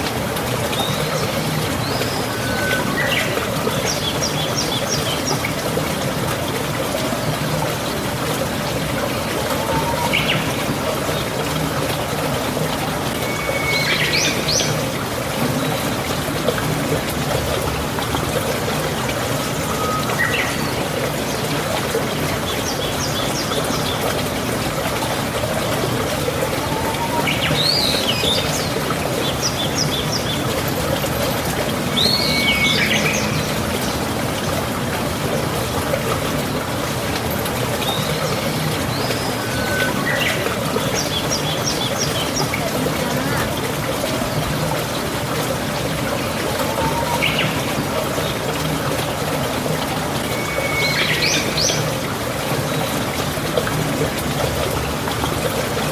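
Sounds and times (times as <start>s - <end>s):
trickle of running water: 0.0s - 55.9s.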